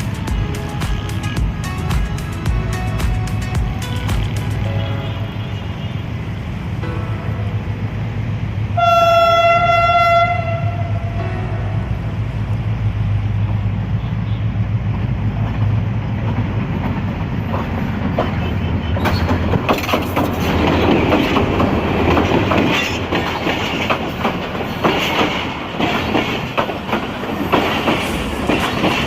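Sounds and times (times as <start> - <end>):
train engine hum: 0.0 - 29.0
train wheels clicking over rail joints: 14.8 - 29.0.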